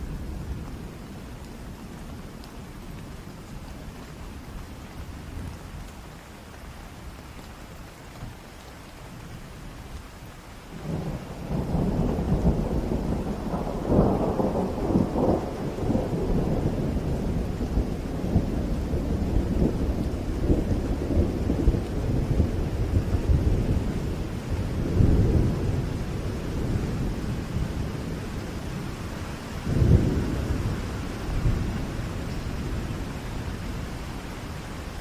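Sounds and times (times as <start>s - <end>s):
steady rain: 0.0s - 35.0s
thunder rumbling: 10.7s - 35.0s.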